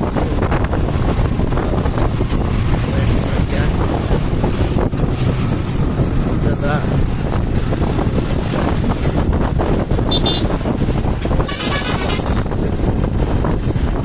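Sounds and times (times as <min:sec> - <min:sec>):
traffic noise: 0:00.0 - 0:14.0
wind rushing over microphone: 0:00.0 - 0:14.0
high-pitched horn blast: 0:10.1 - 0:10.5
short vehicle horn toot: 0:10.1 - 0:10.5.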